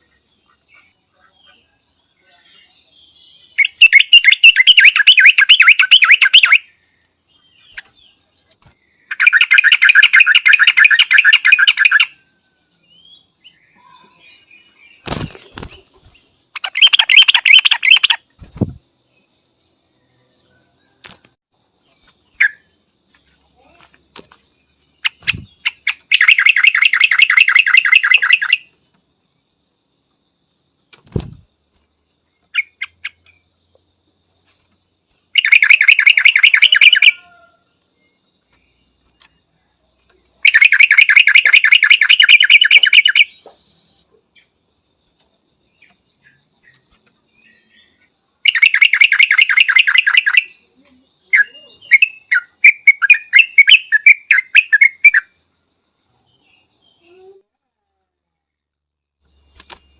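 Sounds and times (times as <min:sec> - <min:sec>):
bird calling in rapid notes: 0:03.6 - 0:06.7, 0:09.1 - 0:12.2, 0:15.0 - 0:18.8, 0:25.0 - 0:28.7, 0:35.4 - 0:37.4, 0:40.4 - 0:43.3, 0:48.5 - 0:50.5, 0:51.4 - 0:55.3
short bird chirps: 0:12.9 - 0:18.8, 0:24.7 - 0:28.8.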